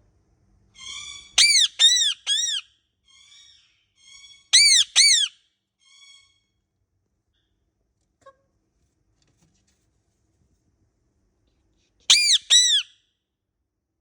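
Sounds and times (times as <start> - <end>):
parrot squawking: 0.8 - 6.4, 12.1 - 12.9.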